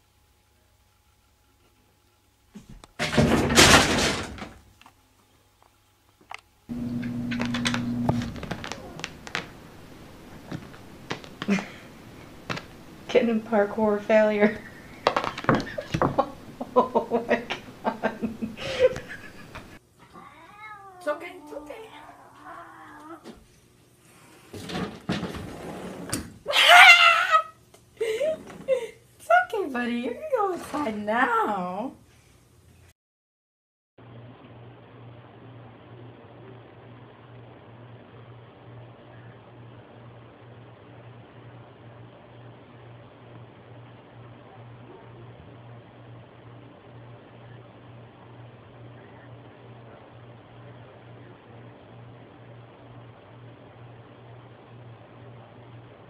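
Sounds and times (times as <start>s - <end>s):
door thumping and rattling: 3.0s - 4.6s
steady low hum: 6.6s - 19.8s, 34.0s - 56.0s
scuffling: 6.7s - 13.0s
cat yowling: 20.1s - 23.2s.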